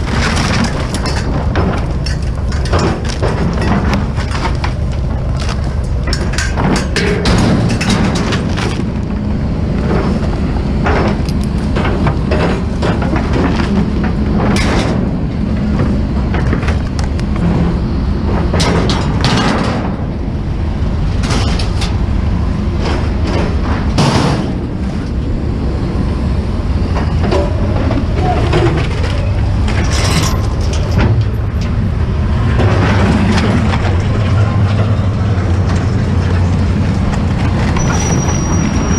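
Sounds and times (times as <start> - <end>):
rattles and knocks: 0.0 - 25.4, 26.9 - 38.9
vehicle engine and road rumble: 0.0 - 38.9.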